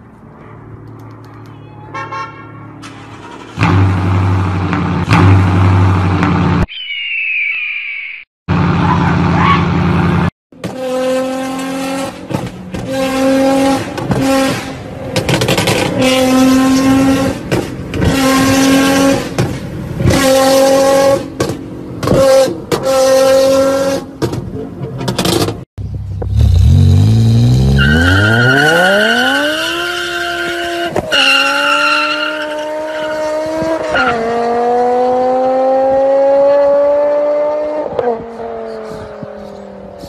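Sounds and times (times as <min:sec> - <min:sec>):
sports car engines revving: 0:08.5 - 0:40.0.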